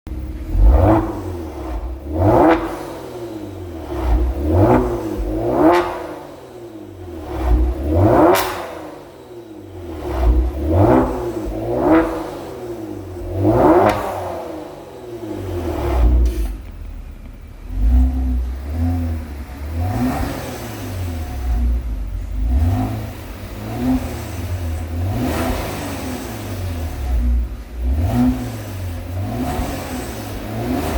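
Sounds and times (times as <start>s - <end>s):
car engine revving: 0.1s - 30.9s.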